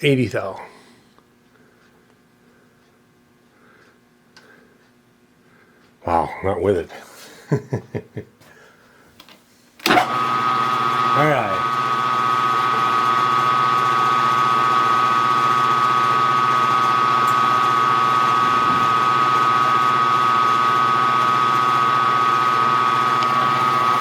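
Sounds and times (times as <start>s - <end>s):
milling machine motor whining: 9.8s - 24.0s.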